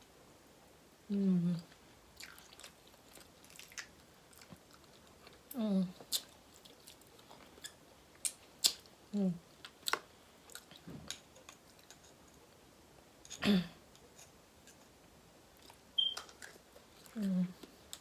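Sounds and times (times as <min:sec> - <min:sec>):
person humming: 0:01.1 - 0:01.7, 0:17.1 - 0:17.6.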